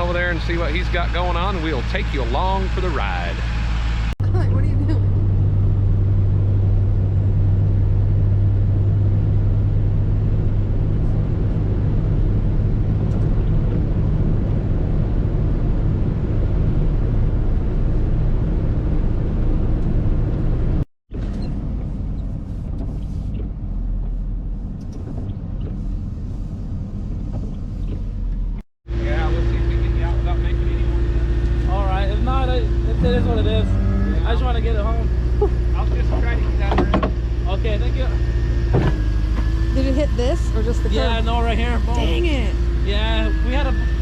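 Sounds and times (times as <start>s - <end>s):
truck engine and road noise: 0.0s - 44.0s.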